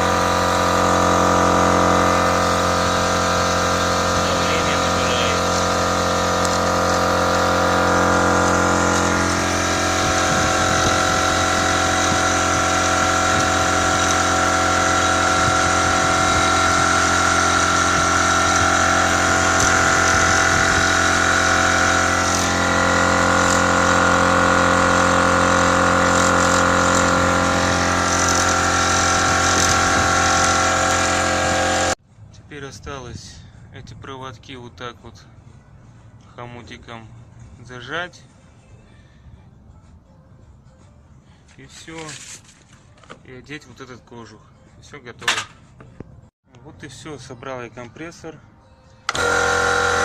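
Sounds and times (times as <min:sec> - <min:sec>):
electric air compressor running: 0:00.0 - 0:32.0, 0:49.1 - 0:50.0.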